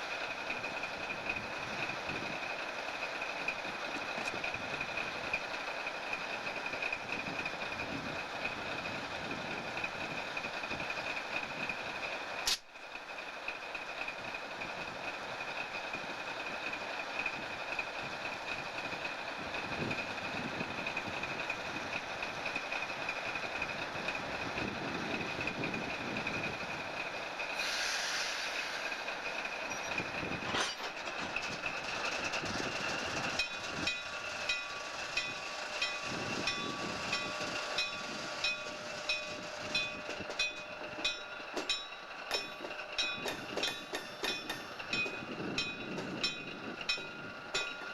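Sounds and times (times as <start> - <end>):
wheels clicking over rail joints: 0.0 - 27.8, 28.5 - 47.9
train cars rolling on track: 0.0 - 47.9
brief hiss: 27.6 - 28.9.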